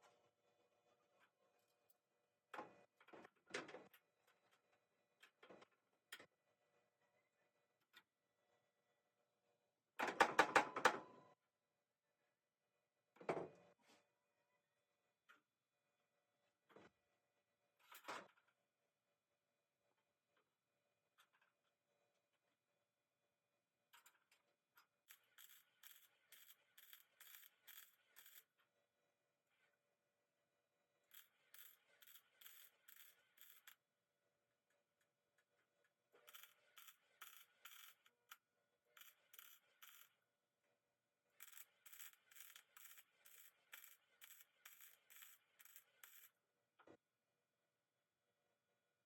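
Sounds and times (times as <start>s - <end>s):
faint rhythmic scraping: 39.0s - 40.1s.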